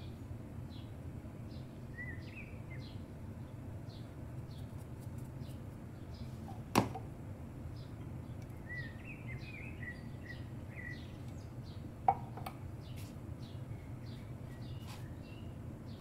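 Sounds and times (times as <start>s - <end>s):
steady low hum: 0.0s - 16.0s
bird chirping: 1.5s - 4.8s, 7.7s - 16.0s.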